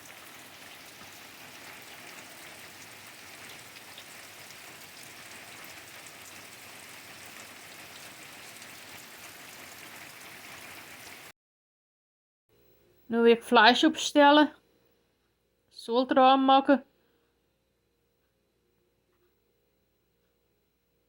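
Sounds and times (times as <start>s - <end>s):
steady rain falling: 0.0s - 11.3s.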